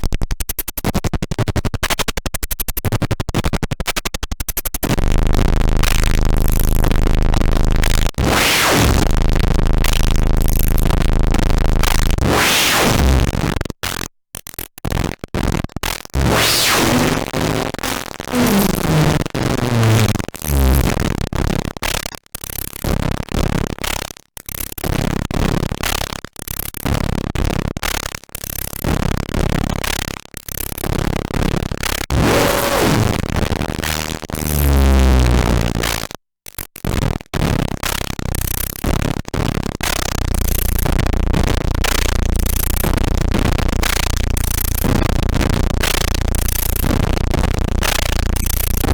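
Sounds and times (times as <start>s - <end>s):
distorted drum machine: 4.9s - 12.9s, 16.2s - 21.0s, 32.0s - 36.0s, 38.0s - 48.9s.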